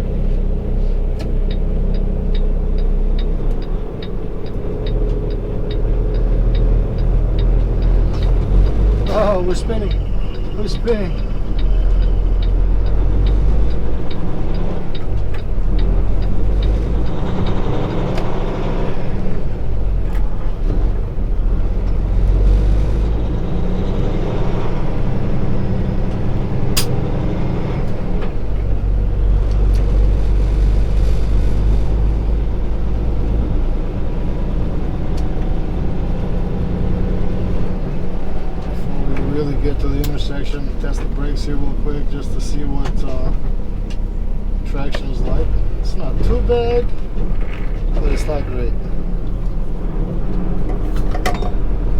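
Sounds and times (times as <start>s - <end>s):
truck diesel engine droning: 0.0s - 51.9s
light ticking: 1.2s - 17.6s.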